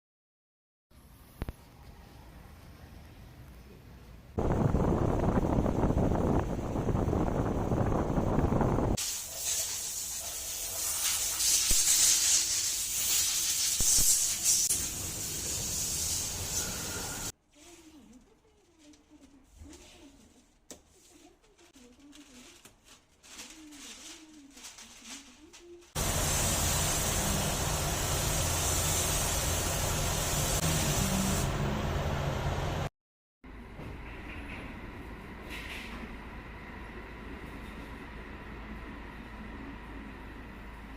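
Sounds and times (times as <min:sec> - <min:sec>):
low rumble: 0:04.4 - 0:09.0
compressed air hissing: 0:09.0 - 0:17.3, 0:26.0 - 0:31.5.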